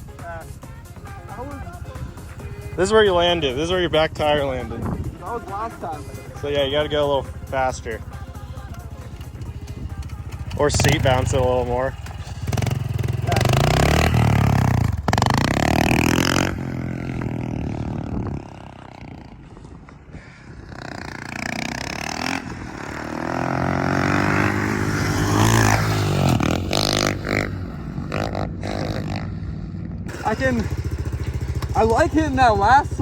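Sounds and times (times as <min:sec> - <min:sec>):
dirt bike engine revving: 0:01.0 - 0:19.4, 0:20.5 - 0:33.0.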